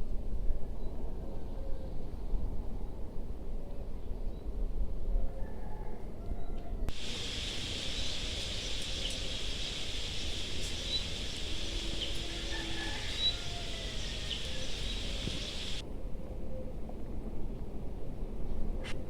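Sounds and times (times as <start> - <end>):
steady high hiss: 6.9 - 15.8.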